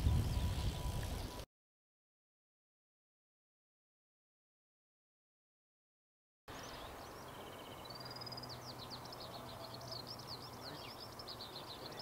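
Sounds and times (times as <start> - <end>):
skylark singing: 6.6 - 12.0.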